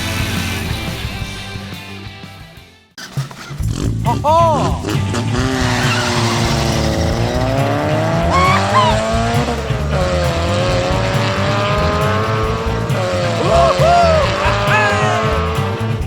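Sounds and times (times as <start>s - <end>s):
car engine: 3.0s - 16.0s
short tire squeals: 8.3s - 9.3s.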